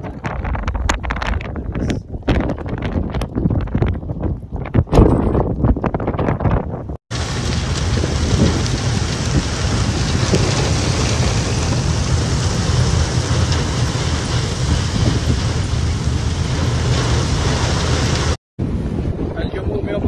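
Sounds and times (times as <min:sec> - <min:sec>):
wind buffeting microphone: 0:00.0 - 0:20.0
rain: 0:07.1 - 0:18.4.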